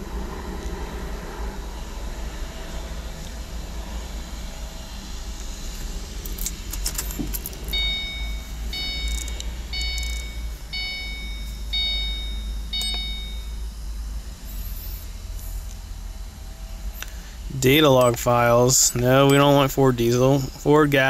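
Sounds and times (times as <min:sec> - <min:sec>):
steady low rumble: 0:00.0 - 0:21.0
keys rattling: 0:05.7 - 0:10.8
car electronic warning chime: 0:06.9 - 0:15.6, 0:17.6 - 0:21.0.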